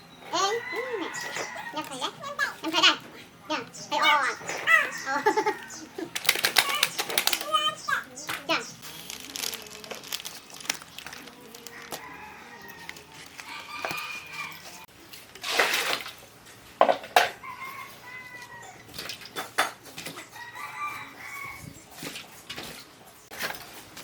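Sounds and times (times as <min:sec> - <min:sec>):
roosters crowing: 0:00.1 - 0:03.0, 0:03.8 - 0:08.8, 0:10.9 - 0:14.9, 0:17.2 - 0:19.1, 0:20.0 - 0:22.1
hens clucking: 0:00.2 - 0:14.9.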